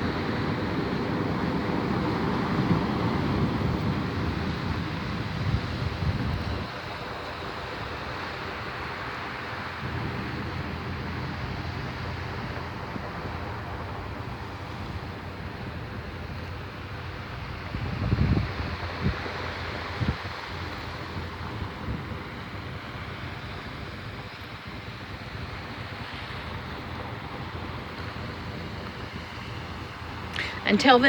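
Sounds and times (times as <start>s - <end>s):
surf washing onto shore: 0.0s - 31.0s.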